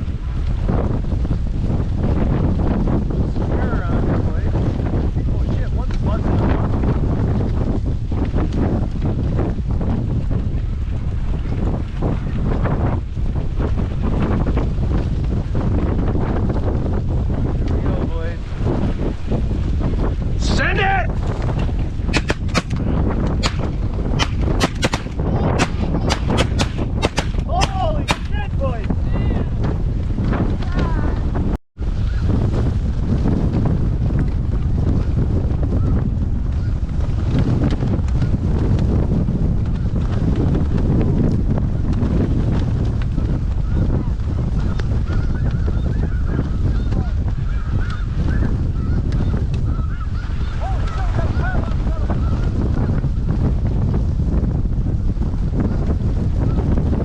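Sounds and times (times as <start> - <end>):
wind buffeting microphone: 0.0 - 57.0
shotguns firing: 22.1 - 28.4.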